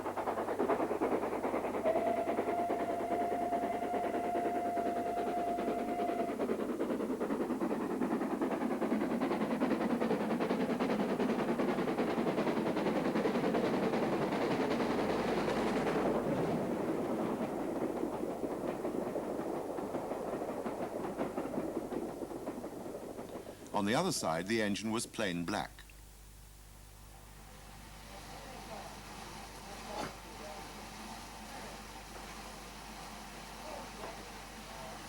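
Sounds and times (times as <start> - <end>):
steam locomotive exhaust beats: 0.0 - 25.9, 26.7 - 35.0
wheels clattering over rail joints: 6.8 - 23.8.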